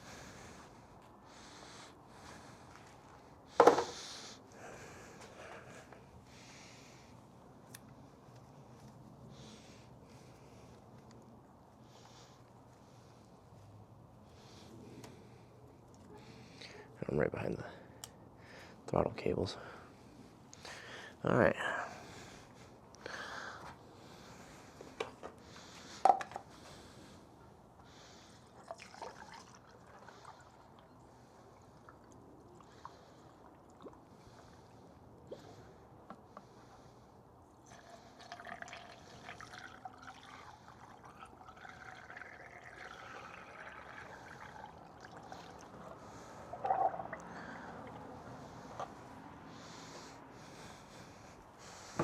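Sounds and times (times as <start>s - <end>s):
liquid pouring: 28.6s - 30.9s, 37.7s - 45.8s, 46.4s - 47.4s.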